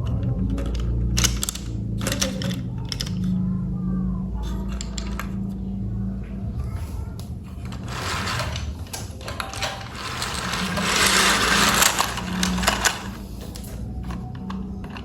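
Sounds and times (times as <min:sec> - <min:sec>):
toy train clicks: 0:00.3 - 0:03.4, 0:04.4 - 0:05.4, 0:07.6 - 0:15.0.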